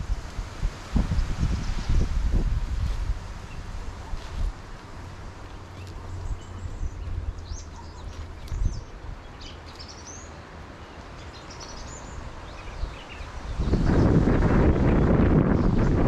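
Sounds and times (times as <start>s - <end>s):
wind rumble on microphone: 0.0s - 9.9s, 11.7s - 16.0s
small birds chirping: 2.8s - 14.3s.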